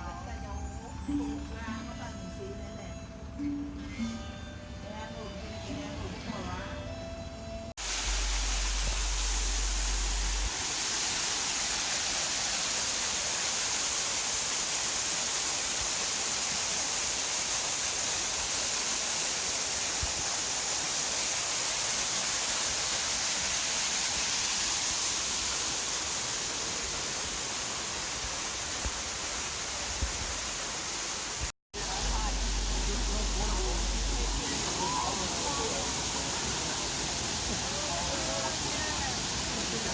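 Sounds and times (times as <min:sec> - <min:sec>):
low rumble: 0:07.8 - 0:10.5, 0:31.8 - 0:34.8
waterfall rushing: 0:07.8 - 0:39.9.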